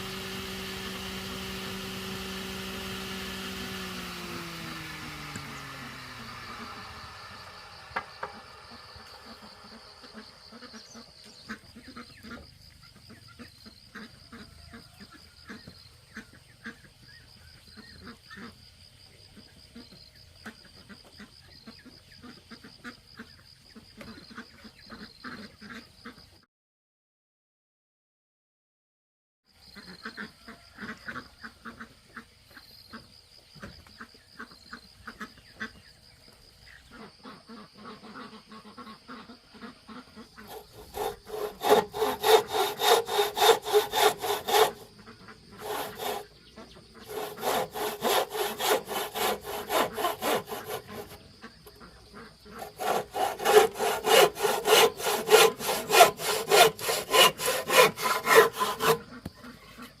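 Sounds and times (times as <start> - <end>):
hand saw cutting wood: 0.0 - 12.4, 40.2 - 60.0.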